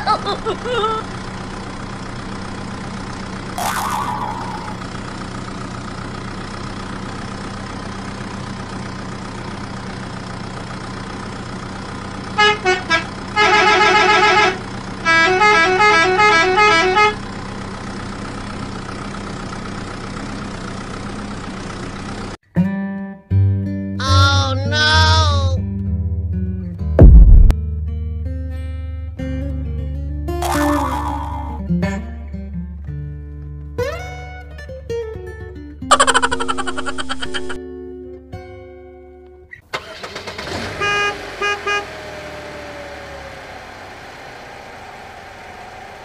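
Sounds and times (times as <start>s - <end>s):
low engine-like drone: 0.0s - 7.7s
musical vehicle horn: 12.3s - 17.3s, 40.0s - 42.5s.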